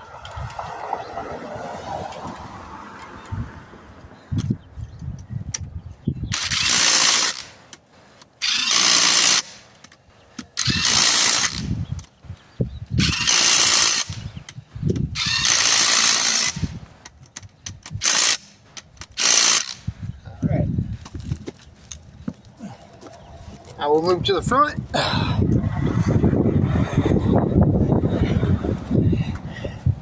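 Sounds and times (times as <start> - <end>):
impact wrench bursts: 6.3 - 7.6, 8.2 - 9.6, 10.4 - 11.8, 13.0 - 14.3, 15.1 - 16.8, 17.7 - 19.9.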